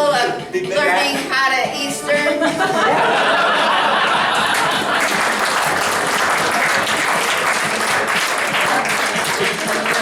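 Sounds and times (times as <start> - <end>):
audience clapping: 4.0 - 10.0.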